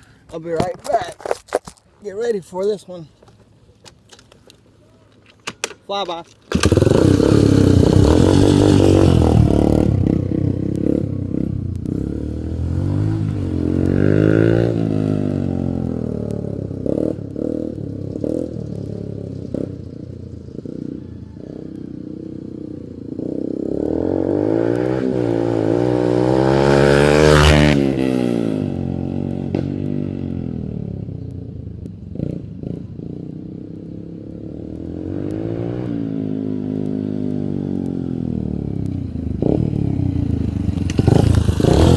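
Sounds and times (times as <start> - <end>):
dirt bike engine revving: 6.5 - 19.9, 22.2 - 30.6, 32.1 - 41.9.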